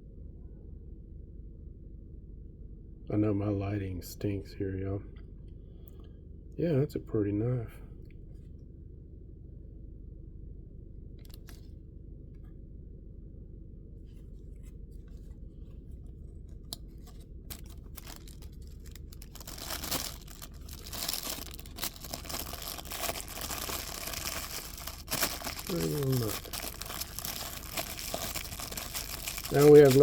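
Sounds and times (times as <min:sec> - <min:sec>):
steady low hum: 0:00.0 - 0:30.0
wrapping rustling and tearing: 0:16.6 - 0:30.0
packaging clicks and scrapes: 0:16.7 - 0:30.0.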